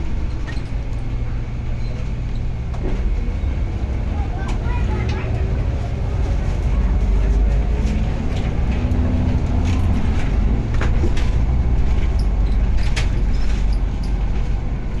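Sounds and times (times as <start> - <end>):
vehicle rumbling on bumpy road: 0.0 - 15.0
sharp knocks and rattles: 7.9 - 15.0.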